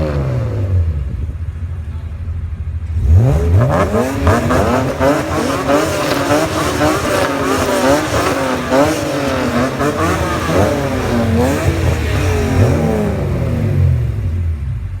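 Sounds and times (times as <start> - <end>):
car engines revving: 0.0 - 15.0
engine idle rumble: 0.8 - 3.2.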